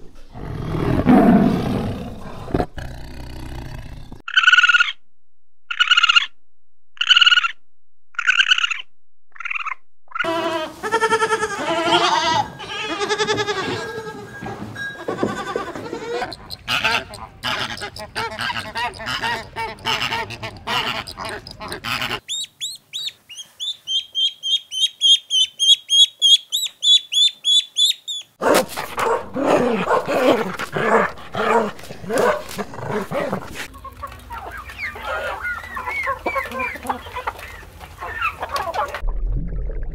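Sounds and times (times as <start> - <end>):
high-pitched bird chirping: 7.0 - 7.6, 8.2 - 10.3, 16.2 - 28.3
animal calls: 9.4 - 39.0.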